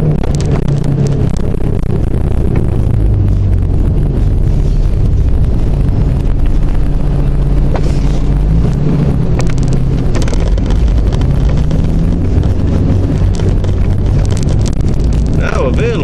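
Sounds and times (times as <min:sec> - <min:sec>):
car engine running while driving: 0:00.0 - 0:16.0
clicks and rattles: 0:09.3 - 0:15.4.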